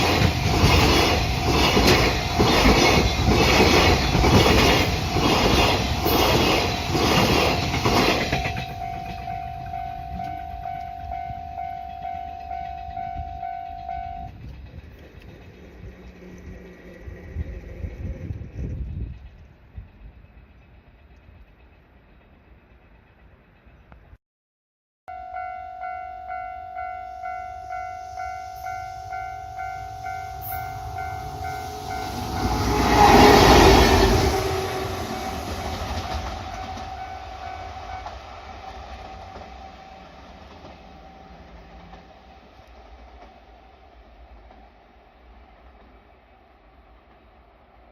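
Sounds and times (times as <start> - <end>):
level-crossing warning bell ringing: 0.0 - 14.4, 25.1 - 38.3
freight train rumble: 0.0 - 24.2, 25.1 - 47.9
level crossing bell dinging: 8.3 - 14.3.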